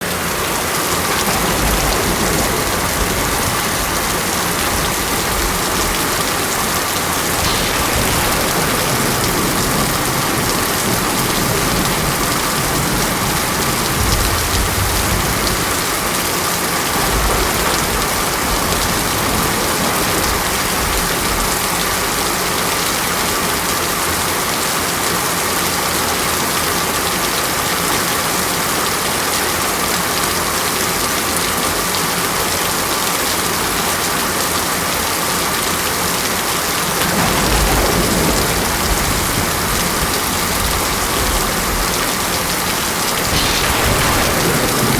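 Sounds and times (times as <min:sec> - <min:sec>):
heavy rain falling: 0:00.0 - 0:44.9
distant thunder rumbles: 0:00.9 - 0:22.4, 0:36.9 - 0:44.9.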